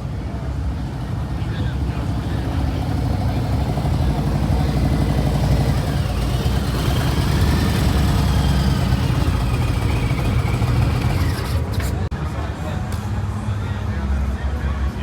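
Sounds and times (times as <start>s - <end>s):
motorcycle engine running: 0.7s - 12.1s.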